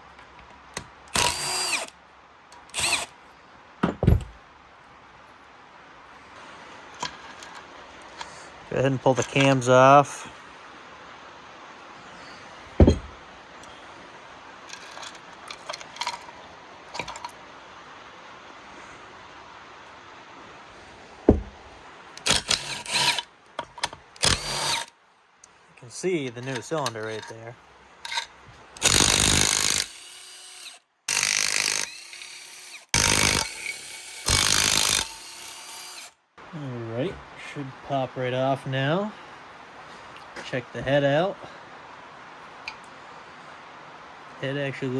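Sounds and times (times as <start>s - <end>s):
motor winding down whine: 1.2s - 1.9s, 2.7s - 3.1s, 28.8s - 36.1s
dull thump: 3.8s - 4.4s, 12.8s - 13.2s, 21.2s - 21.7s
impact wrench hammering: 12.8s - 13.2s, 21.3s - 21.6s, 22.2s - 23.2s, 24.2s - 24.9s, 28.8s - 36.1s
metallic clicks of tools and parts: 14.7s - 17.4s, 22.2s - 24.9s, 26.4s - 27.4s, 28.0s - 29.9s.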